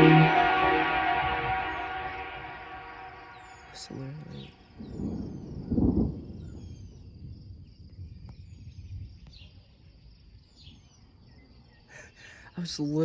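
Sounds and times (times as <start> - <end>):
thunder clap and rumble: 4.7 - 9.1.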